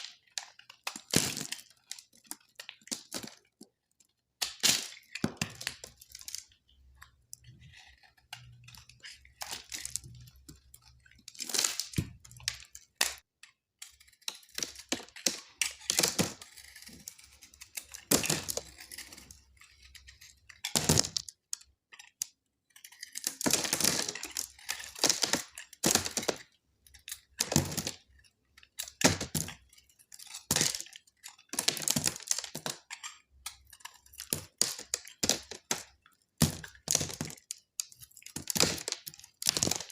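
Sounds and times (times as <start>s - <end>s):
blade cracking through dry soap: 0.0s - 39.9s
blade scraping soap: 5.0s - 20.7s, 22.0s - 23.4s.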